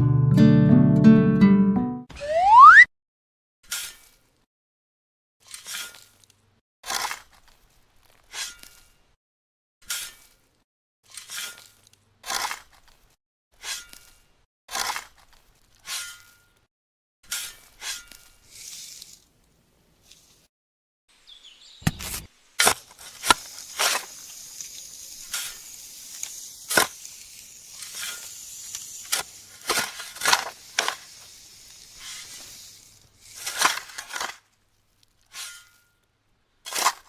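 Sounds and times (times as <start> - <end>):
small parts clicking and scraping: 5.4 - 9.0, 9.8 - 16.7, 17.3 - 19.3, 22.0 - 36.1, 36.7 - 37.0
faint steady hiss: 21.1 - 34.0.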